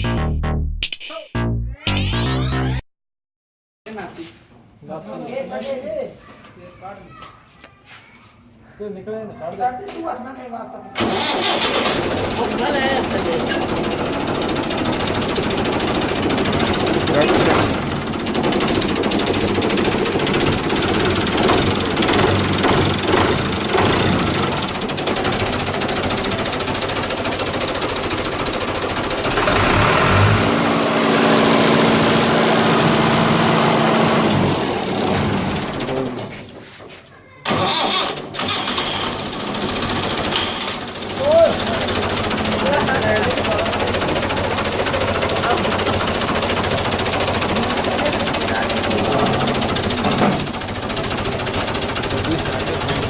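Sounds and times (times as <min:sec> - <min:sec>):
tractor diesel engine clattering: 0:11.0 - 0:36.4, 0:37.5 - 0:53.0.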